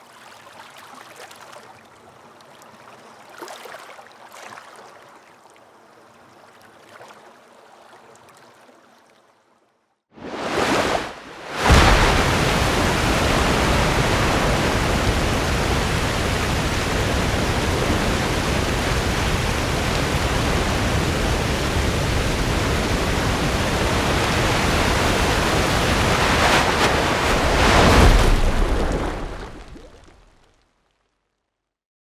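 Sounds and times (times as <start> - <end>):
ocean waves breaking on beach: 10.2 - 30.3.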